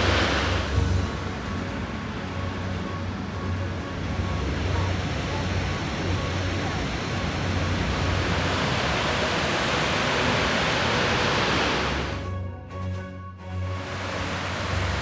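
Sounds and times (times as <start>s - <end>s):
river water rushing: 0.0s - 12.2s, 13.8s - 15.0s
faint steady tones: 0.0s - 15.0s.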